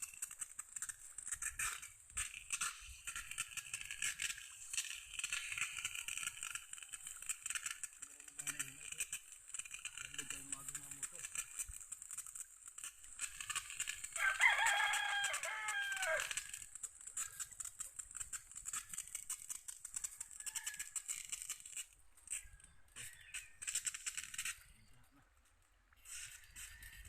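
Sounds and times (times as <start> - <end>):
clicks and scrapes: 0.0 - 27.0
rooster crowing: 14.1 - 16.6, 20.0 - 21.2.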